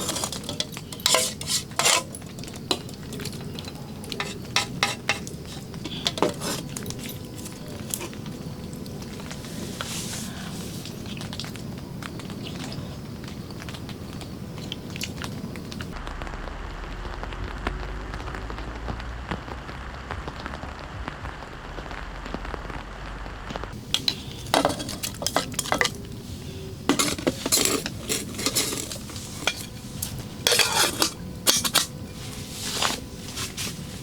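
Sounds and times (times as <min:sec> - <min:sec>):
metal kitchenware clinking and scraping: 0:00.0 - 0:08.2, 0:23.9 - 0:26.1, 0:26.9 - 0:33.0
steady hiss: 0:00.0 - 0:12.1, 0:23.7 - 0:34.0.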